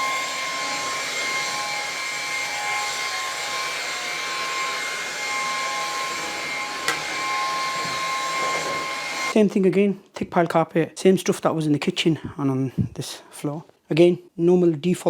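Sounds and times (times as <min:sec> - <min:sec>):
stick vacuum running: 0:00.0 - 0:09.3.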